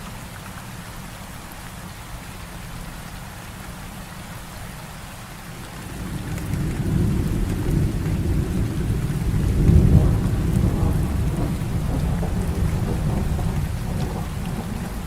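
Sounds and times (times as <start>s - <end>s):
heavy rain: 0.0s - 15.0s
rolling thunder: 5.6s - 15.0s.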